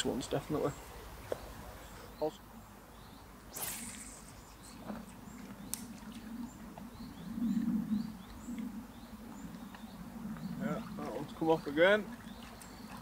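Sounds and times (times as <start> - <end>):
small bird chirping: 0.6 - 10.8
low outdoor rumble: 2.5 - 13.0.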